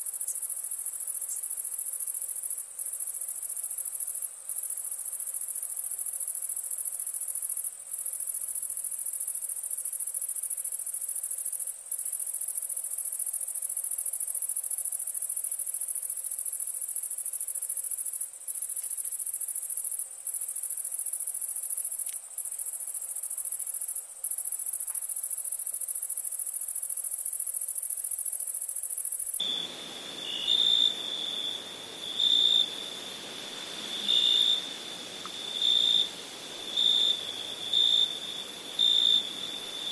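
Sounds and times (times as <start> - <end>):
insects trilling high-pitched: 0.4 - 39.9
insect chirping in short pulses: 27.8 - 39.9.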